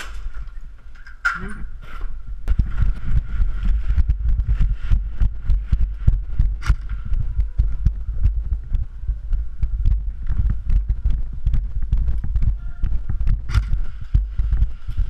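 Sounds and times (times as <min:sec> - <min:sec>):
footsteps and gear thumping: 0:01.8 - 0:15.0
sharp clicks: 0:11.5 - 0:14.2.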